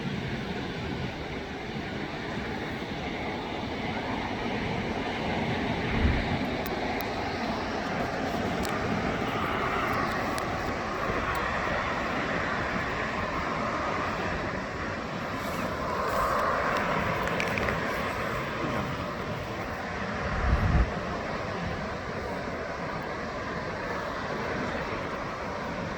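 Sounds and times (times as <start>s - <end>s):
jet airliner engine rushing: 0.0s - 25.9s
wind buffeting microphone: 0.0s - 25.9s.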